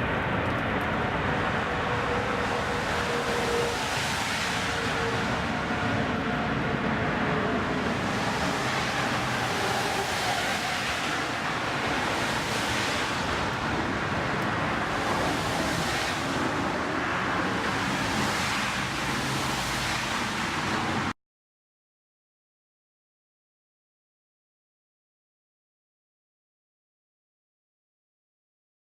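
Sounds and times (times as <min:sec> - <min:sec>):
jet engines rushing: 0:00.0 - 0:21.1
wind on microphone: 0:00.0 - 0:21.1.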